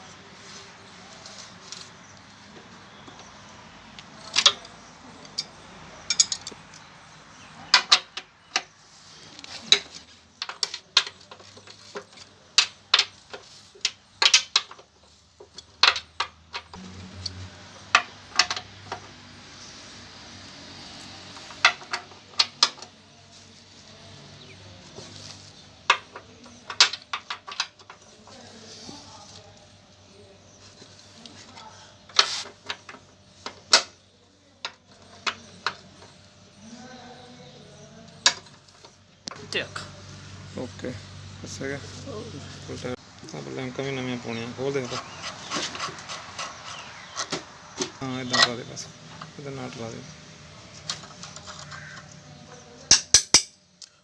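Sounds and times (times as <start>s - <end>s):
metal tools clinking and clanking: 4.0s - 8.7s, 9.3s - 19.1s, 21.3s - 23.0s, 25.0s - 29.3s, 44.8s - 49.9s, 50.7s - 52.1s, 52.9s - 53.6s.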